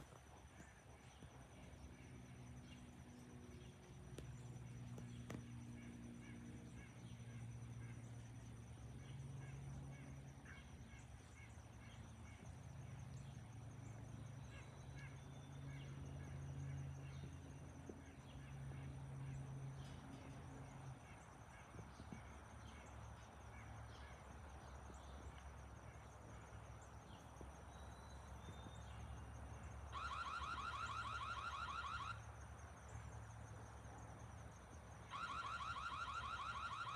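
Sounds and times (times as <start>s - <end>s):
pulsing electronic alarm tone: 29.9s - 32.3s, 35.0s - 36.9s.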